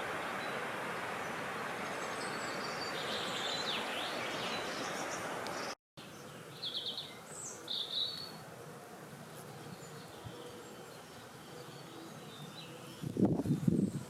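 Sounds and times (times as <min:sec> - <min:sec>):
songbirds chirping: 0:00.0 - 0:14.0
wind blowing: 0:08.3 - 0:14.0.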